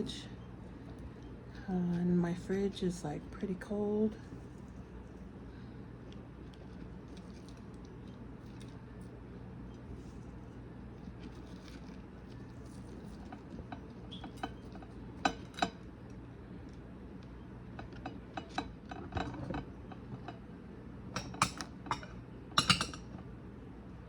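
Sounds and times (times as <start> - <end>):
dishes and utensils clinking: 21.2 - 23.1.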